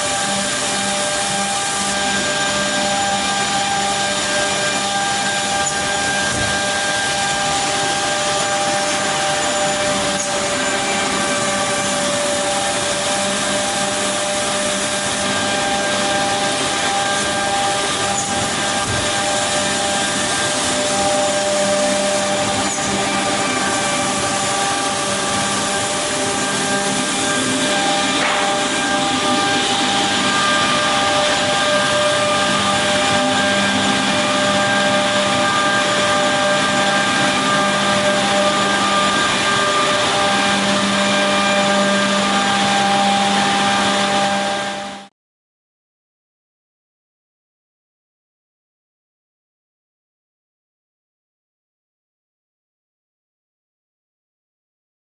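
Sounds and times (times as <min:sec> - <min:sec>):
woodworking machine running: 0:00.0 - 0:45.1.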